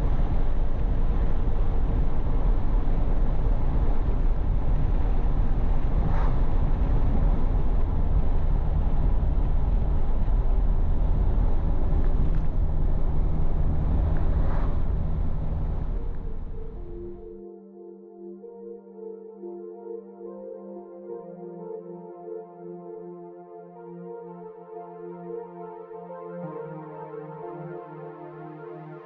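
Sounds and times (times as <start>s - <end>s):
wind noise on microphone: 0.0s - 17.1s
pickup engine rumbling: 0.0s - 17.3s.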